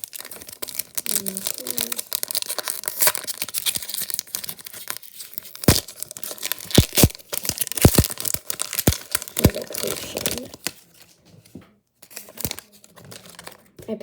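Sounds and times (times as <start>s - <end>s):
foil wrapper crinkling: 0.0s - 11.2s, 12.0s - 13.7s
trading cards shuffled: 7.8s - 13.8s.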